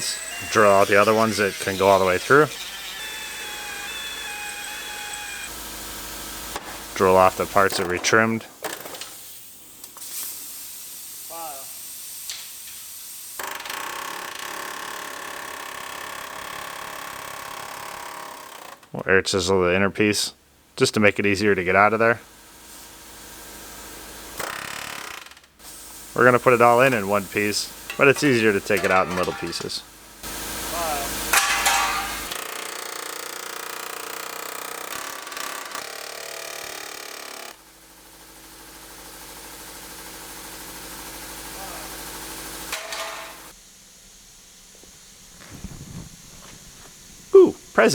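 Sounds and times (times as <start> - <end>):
air chisel hammering metal: 0.0 - 5.5, 26.3 - 29.8, 30.8 - 37.4, 42.7 - 43.5
drill whining into sheet metal: 0.0 - 8.2, 13.4 - 18.9, 24.3 - 37.6, 38.2 - 43.6.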